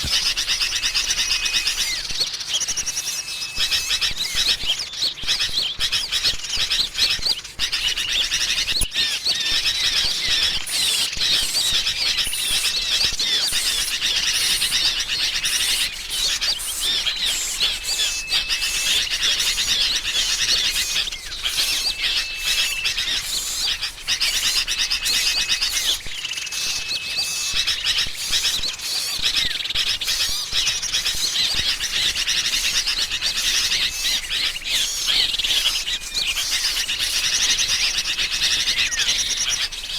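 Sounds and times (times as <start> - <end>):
songbirds chirping: 0.0 - 39.9
bulbuls chattering: 3.6 - 39.9.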